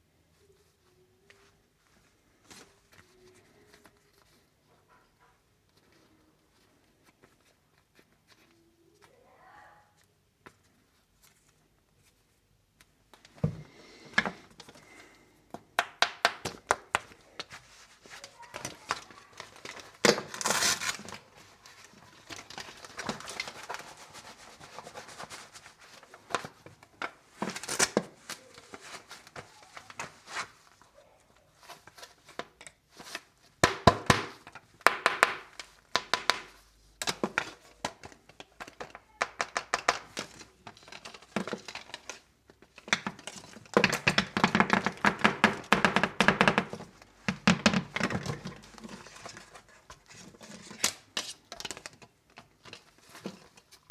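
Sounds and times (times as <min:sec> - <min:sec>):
packaging crinkling and rustling: 0:16.5 - 0:53.9.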